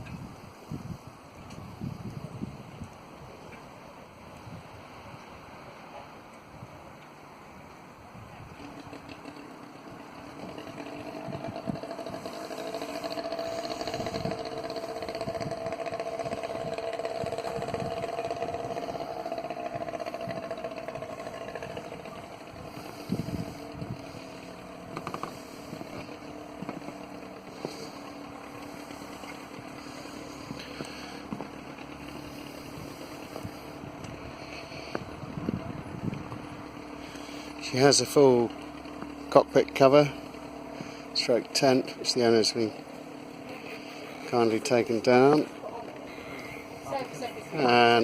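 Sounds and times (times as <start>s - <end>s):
passing motor engine hum: 0.0s - 48.0s.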